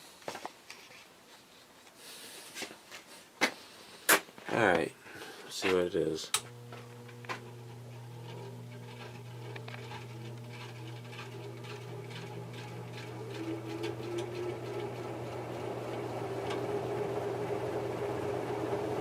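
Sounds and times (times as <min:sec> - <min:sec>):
ceiling fan motor humming: 0:05.8 - 0:19.0.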